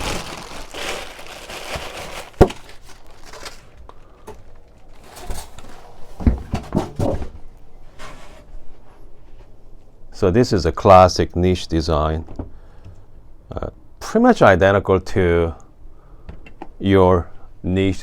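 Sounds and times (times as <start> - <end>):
packaging rustling and crinkling: 0.0 - 7.2
dull thumps: 5.1 - 7.5.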